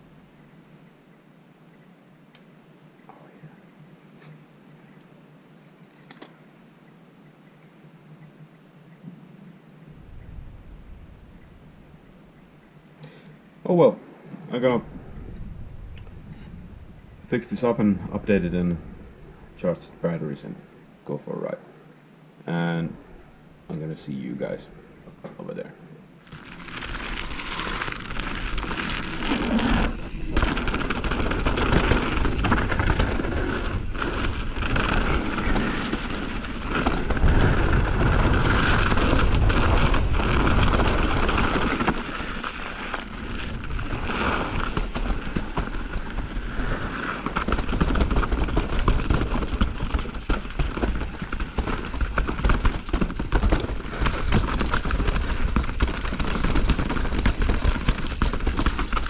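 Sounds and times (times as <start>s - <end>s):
wind rumbling on microphone: 9.2s - 12.9s, 14.1s - 19.9s, 26.2s - 59.0s
tyres rolling on dirt: 23.7s - 59.0s
bike knocks and rattles: 26.4s - 59.0s.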